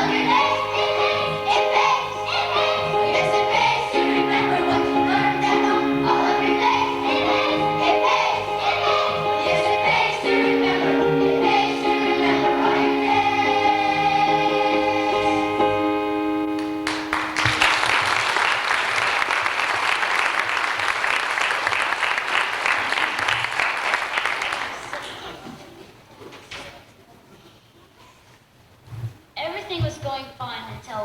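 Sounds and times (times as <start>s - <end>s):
choir singing with accompaniment: 0.0s - 16.8s
audience applauding: 16.6s - 25.4s.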